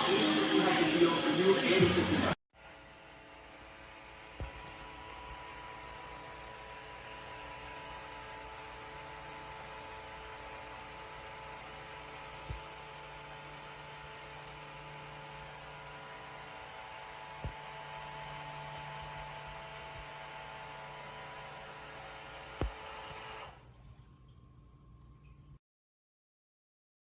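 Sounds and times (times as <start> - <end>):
machine hum: 0.0 - 2.4.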